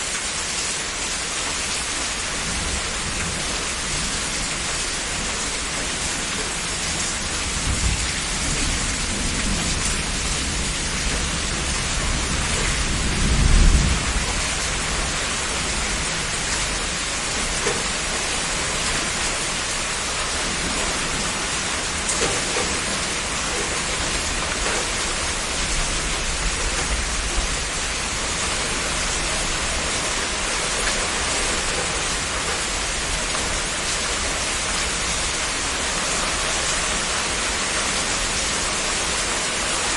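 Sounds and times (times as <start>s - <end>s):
heavy rain: 0.0s - 39.9s
thunder rumbling: 7.4s - 18.7s.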